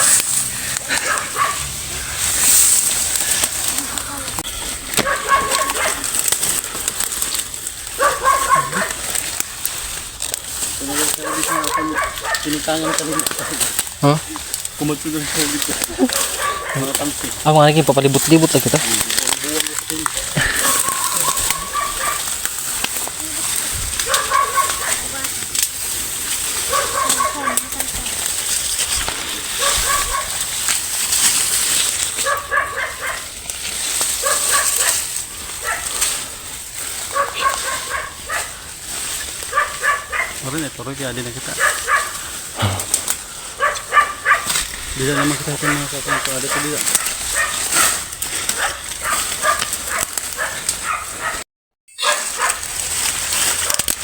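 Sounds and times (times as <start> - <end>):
animal yelping: 0.0 - 1.7, 3.8 - 6.2, 7.9 - 9.4, 11.2 - 14.4, 15.8 - 17.3, 20.2 - 22.4, 23.2 - 25.3, 26.6 - 28.0, 29.5 - 30.4, 32.2 - 33.3, 34.2 - 36.0, 37.0 - 38.6, 39.4 - 40.4, 41.5 - 43.0, 43.6 - 51.4, 52.0 - 52.7.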